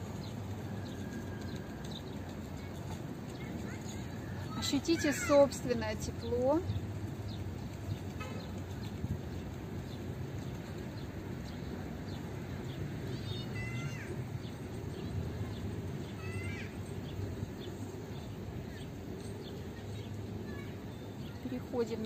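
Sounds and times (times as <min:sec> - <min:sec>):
small birds chirping: 0:00.0 - 0:22.0
descending bird trill: 0:13.1 - 0:21.5.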